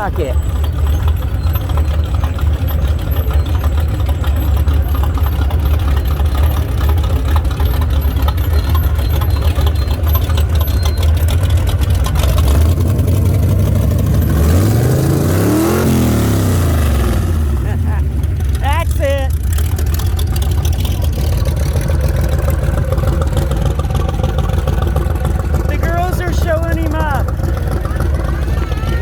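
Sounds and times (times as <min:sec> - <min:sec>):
car engines rumbling: 0:00.0 - 0:29.0
engine revving: 0:00.0 - 0:29.0.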